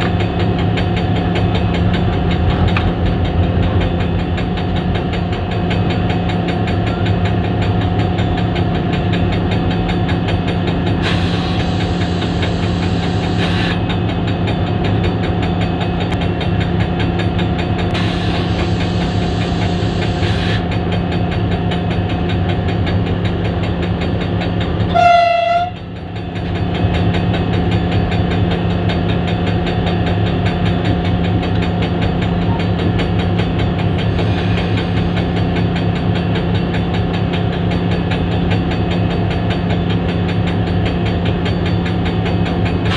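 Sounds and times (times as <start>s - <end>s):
locomotive diesel engine running: 0.0s - 42.9s
locomotive horn blast: 24.9s - 25.8s.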